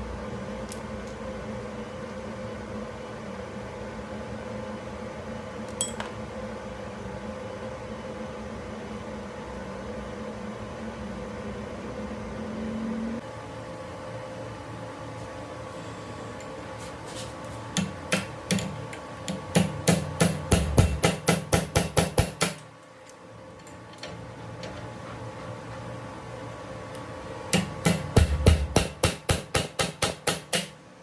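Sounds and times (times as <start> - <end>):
workshop machine hum: 8.4 - 31.0
hammer striking metal: 17.8 - 22.7, 27.5 - 30.8.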